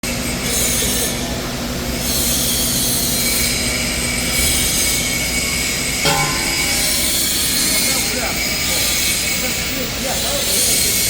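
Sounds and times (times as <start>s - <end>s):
high whining machine tones: 3.3s - 10.0s.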